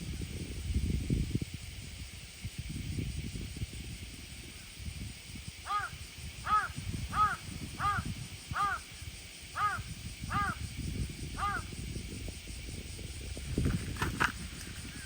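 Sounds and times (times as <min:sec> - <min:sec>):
low wind rumble: 0:00.0 - 0:15.0
crow cawing: 0:05.7 - 0:08.8, 0:09.6 - 0:10.6, 0:11.4 - 0:11.7.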